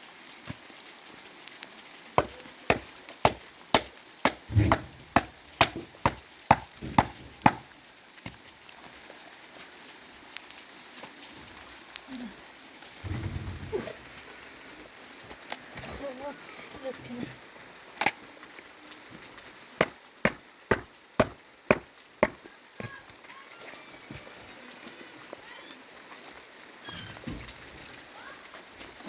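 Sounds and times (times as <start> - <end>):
dull thud: 4.5 - 7.6, 13.0 - 14.1.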